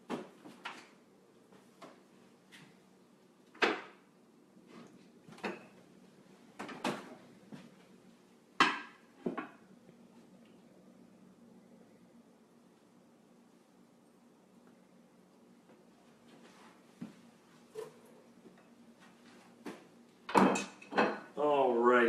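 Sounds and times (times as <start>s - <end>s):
dishes and utensils clattering: 20.3s - 21.3s.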